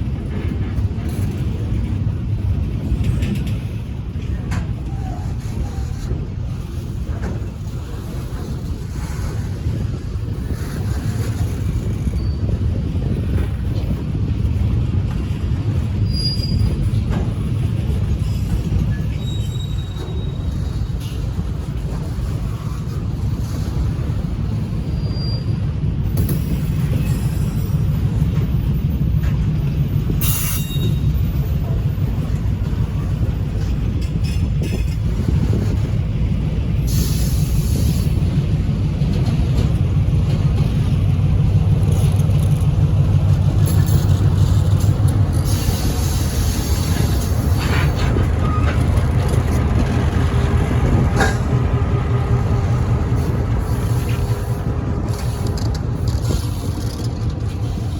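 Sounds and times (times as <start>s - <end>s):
diesel locomotive engine running: 0.0s - 57.9s
freight cars rolling: 0.0s - 57.9s
high wheel squeals: 16.0s - 17.0s, 18.2s - 21.2s, 24.8s - 25.7s, 30.2s - 31.3s, 45.4s - 49.6s.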